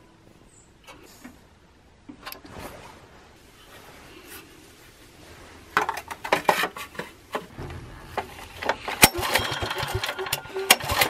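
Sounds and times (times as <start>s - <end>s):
faint rubbing and scraping: 2.4s - 9.0s.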